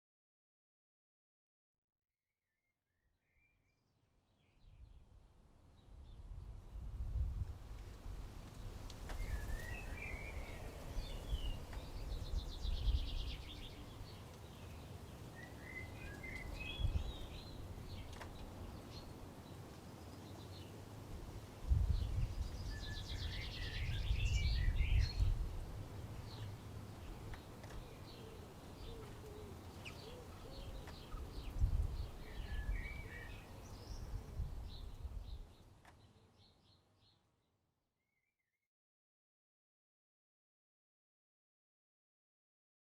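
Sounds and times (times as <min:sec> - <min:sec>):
birdsong: 0:08.5 - 0:20.8, 0:21.7 - 0:37.3
birds chirping and calling: 0:26.2 - 0:35.1.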